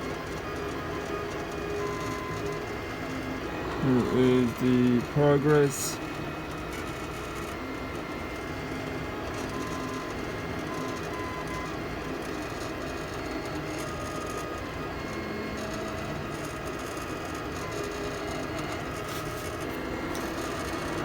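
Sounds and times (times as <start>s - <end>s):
stepper motors singing tones: 2.1s - 6.4s.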